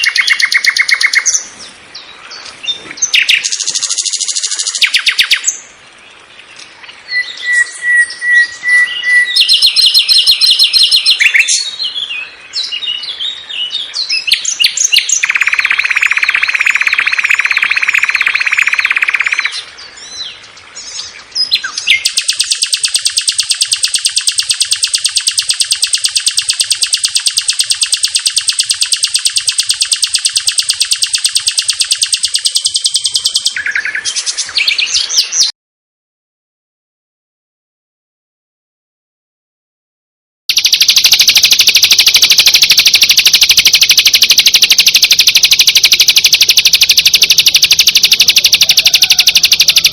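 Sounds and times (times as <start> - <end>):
fast high-pitched bird trill: 0.0 - 1.3, 3.1 - 5.5, 7.2 - 11.7, 14.3 - 19.6, 21.8 - 35.5, 40.5 - 49.9
bird chirps and whistles: 0.0 - 1.4, 3.0 - 5.6, 7.1 - 19.6, 21.5 - 35.5, 40.5 - 49.9
buzzing bird trill: 15.2 - 19.6, 21.9 - 33.6, 40.5 - 49.9.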